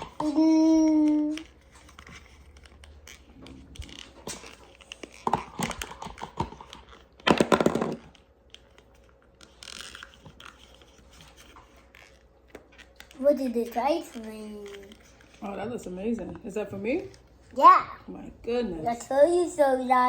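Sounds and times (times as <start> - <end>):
toys clicking and rustling: 0.0 - 17.3
crinkling rustle: 8.1 - 16.0.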